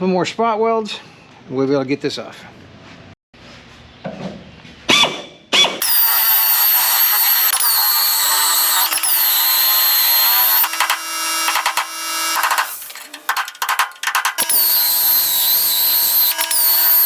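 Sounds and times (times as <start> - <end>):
drill screeching through sheet steel: 5.8 - 17.0.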